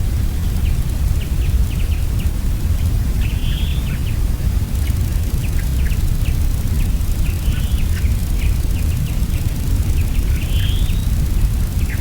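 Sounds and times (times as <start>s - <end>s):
small birds chirping: 4.8s - 12.0s.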